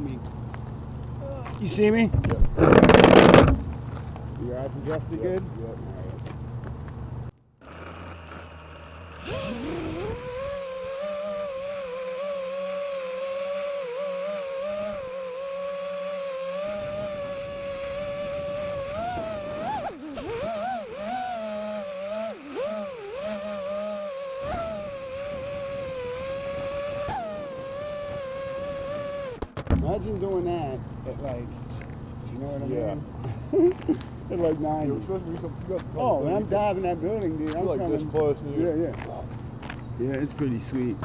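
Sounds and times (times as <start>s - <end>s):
drone motors whining: 0.0s - 4.2s, 7.6s - 29.6s.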